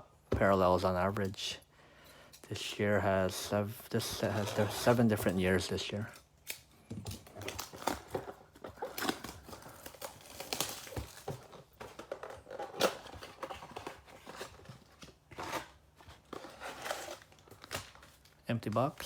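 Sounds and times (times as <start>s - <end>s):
plastic wrap tearing and crinkling: 4.1s - 19.0s.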